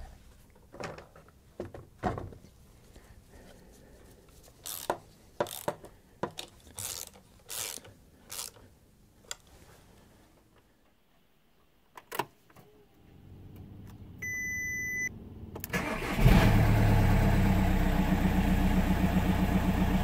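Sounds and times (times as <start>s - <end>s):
car engine starting and idling: 13.1s - 20.0s
dashboard warning beep: 14.2s - 15.1s.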